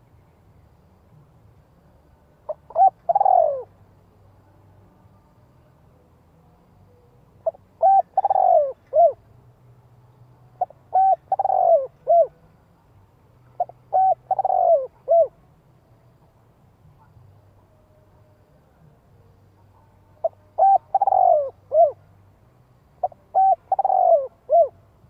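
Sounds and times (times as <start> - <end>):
dove cooing: 2.5 - 3.7, 7.4 - 9.2, 10.6 - 12.4, 13.6 - 15.4, 20.2 - 22.0, 23.0 - 24.8.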